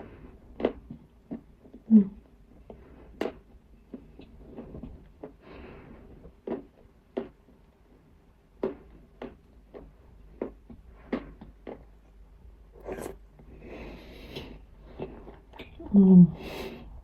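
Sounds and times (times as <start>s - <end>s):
breathy chewing: 0.0s - 7.6s.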